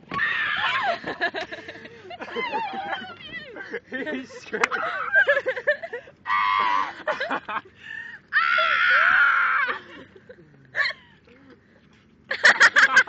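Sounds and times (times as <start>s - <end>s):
person screaming: 6.3s - 7.0s, 8.4s - 9.8s.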